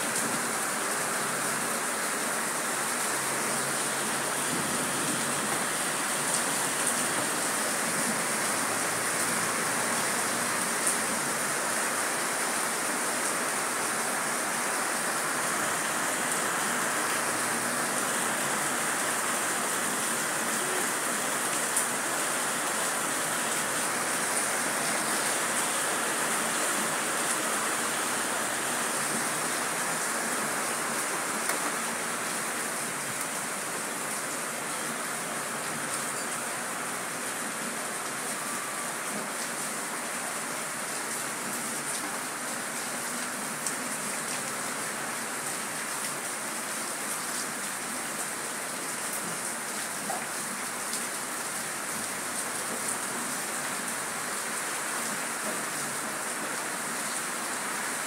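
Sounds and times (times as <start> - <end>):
heavy rain hissing: 0.0 - 58.0
sharp rain ticks: 28.6 - 34.5.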